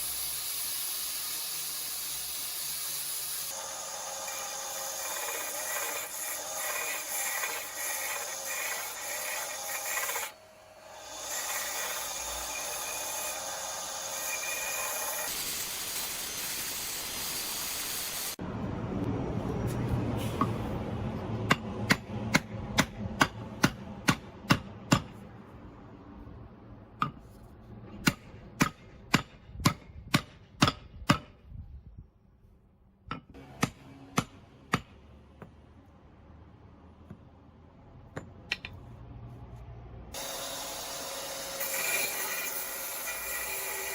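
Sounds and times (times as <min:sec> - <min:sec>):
hammer strikes: 0:21.4 - 0:25.2, 0:27.0 - 0:27.3, 0:27.9 - 0:31.4, 0:33.1 - 0:35.6.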